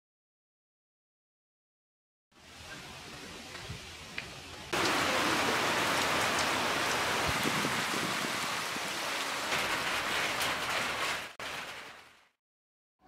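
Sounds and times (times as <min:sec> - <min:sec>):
rain splashing on puddles: 0:02.4 - 0:12.4.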